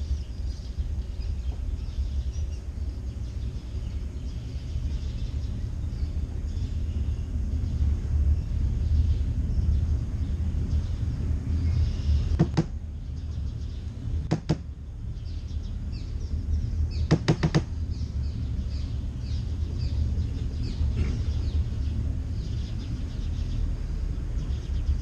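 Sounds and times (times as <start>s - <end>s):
boat engine rumbling: 0.0s - 25.0s
sharp clicking knocks: 12.3s - 12.8s, 14.2s - 14.7s, 17.0s - 17.8s.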